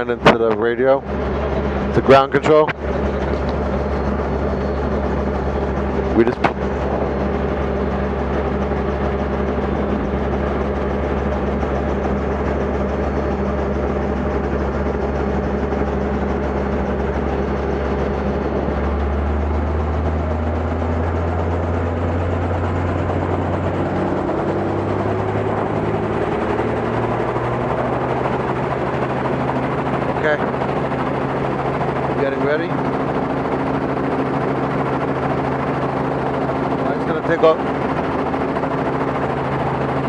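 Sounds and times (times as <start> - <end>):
helicopter engine and rotor: 0.0 - 40.0.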